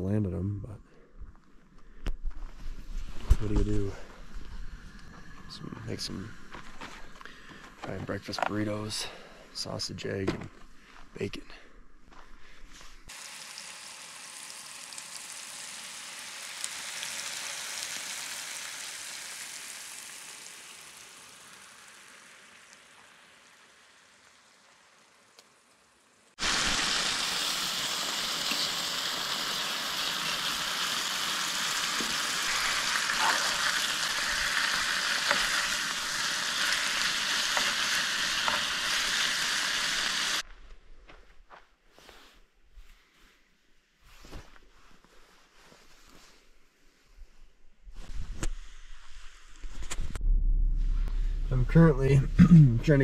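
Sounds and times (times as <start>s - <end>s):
bacon and sausages sizzling: 13.1s - 40.4s.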